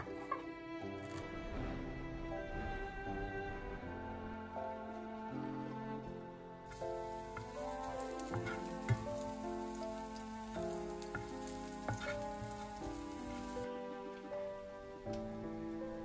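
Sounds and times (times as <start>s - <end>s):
background music: 0.0s - 16.0s
garlic sizzling in oil: 6.7s - 16.0s.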